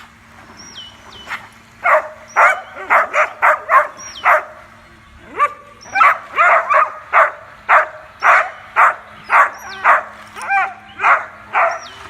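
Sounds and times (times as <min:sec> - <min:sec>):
dog barking: 0:01.8 - 0:04.6, 0:05.3 - 0:12.0.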